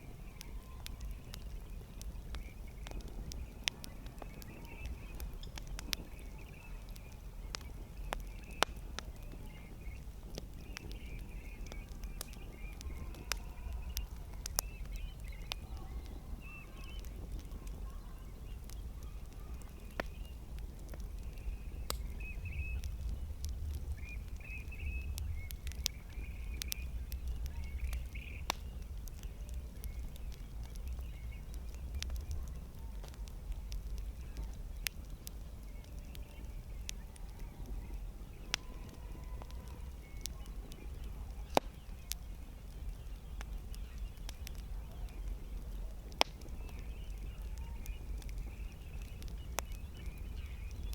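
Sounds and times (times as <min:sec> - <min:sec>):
birds chirping faintly: 0:00.0 - 0:50.9
campfire crackling and popping: 0:00.0 - 0:50.9
steady low rumble: 0:00.0 - 0:50.9.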